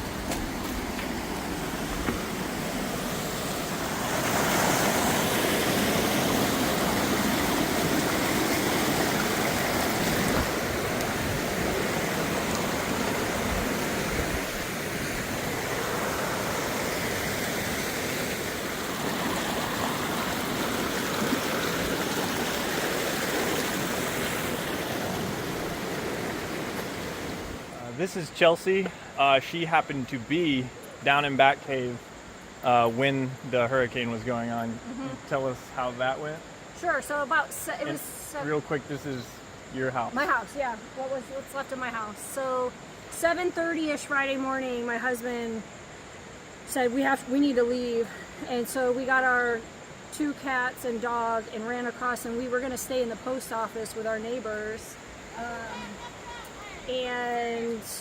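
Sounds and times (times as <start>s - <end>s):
rushing stream water: 0.0s - 30.0s.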